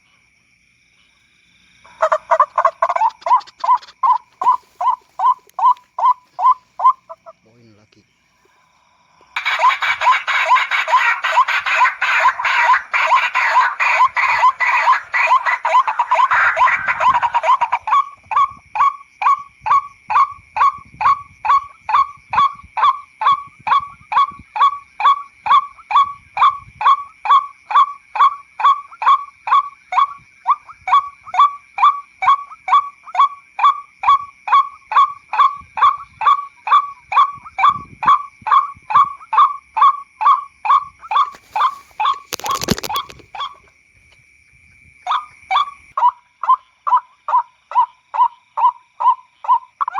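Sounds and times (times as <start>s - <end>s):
waterhen call repeated: 1.9s - 7.4s, 9.4s - 43.6s
rustling noise: 3.2s - 6.8s, 41.1s - 43.7s.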